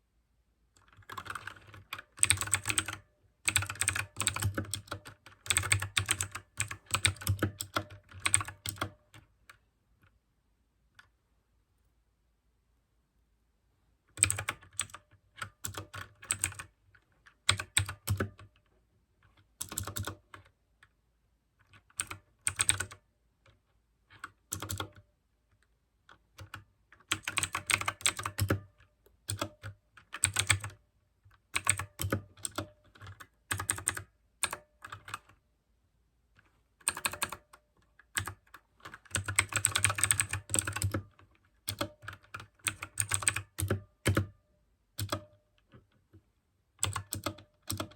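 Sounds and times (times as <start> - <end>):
mechanical keyboard typing: 0.8 - 9.6, 14.1 - 18.7, 19.3 - 20.5, 21.6 - 23.0, 24.1 - 25.1, 26.1 - 30.8, 31.4 - 35.4, 36.8 - 44.4, 45.0 - 45.8, 46.8 - 47.9.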